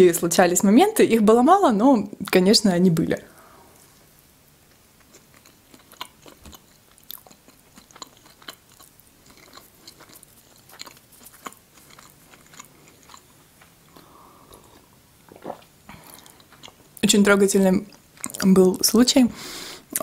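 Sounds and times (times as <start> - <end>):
person chewing pastry: 4.7 - 17.0, 17.9 - 18.5.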